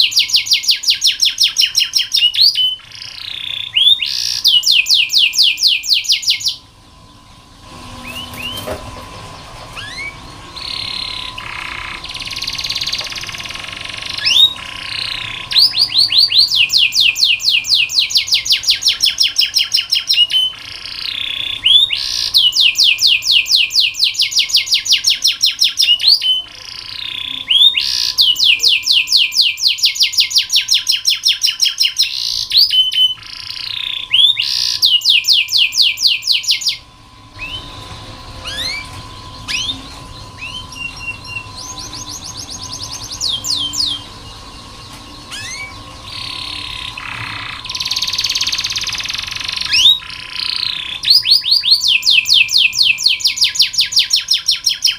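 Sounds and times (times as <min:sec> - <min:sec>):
canary singing trills: 0:00.0 - 0:54.9.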